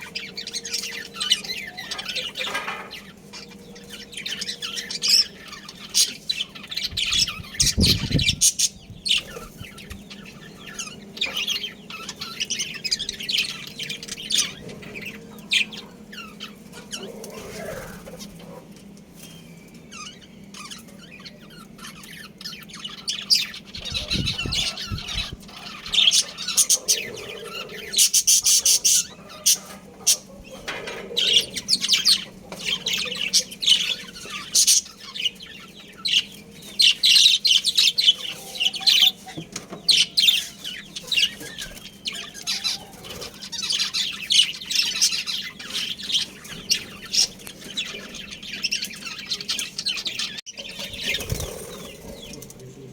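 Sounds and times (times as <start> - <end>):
budgerigars chattering and chirping: 0.0 - 52.9.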